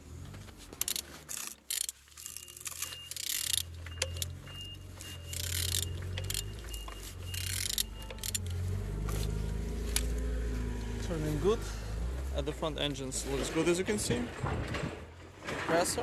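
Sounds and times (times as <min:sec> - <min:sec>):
wrench clinking and scraping: 0:00.7 - 0:09.3
thin squeak: 0:02.2 - 0:08.6.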